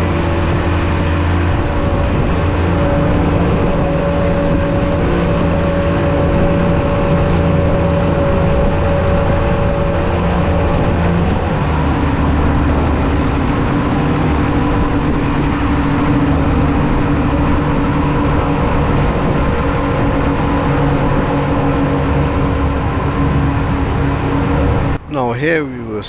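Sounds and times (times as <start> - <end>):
brief high hiss: 7.1 - 7.9.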